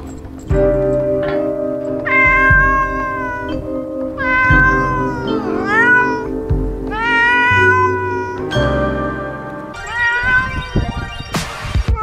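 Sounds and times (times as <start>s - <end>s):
background music with beat: 0.0s - 9.8s
cat meowing: 1.8s - 11.3s.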